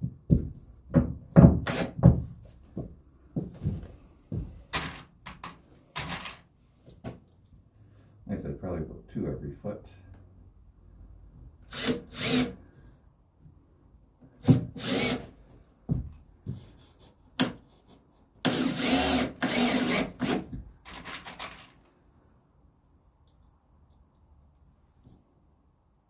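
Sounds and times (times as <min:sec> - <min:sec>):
power drill driving screws into wood: 0:01.6 - 0:02.1, 0:11.7 - 0:12.6, 0:14.4 - 0:15.4, 0:18.4 - 0:21.3.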